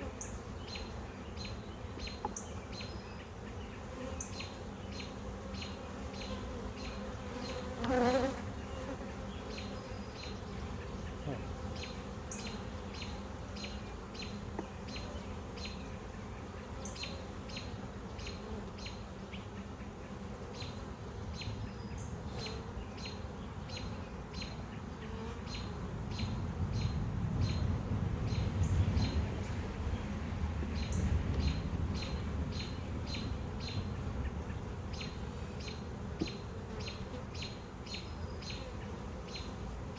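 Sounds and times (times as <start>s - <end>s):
bees buzzing: 0.0s - 26.3s
bee flying past: 3.4s - 39.9s.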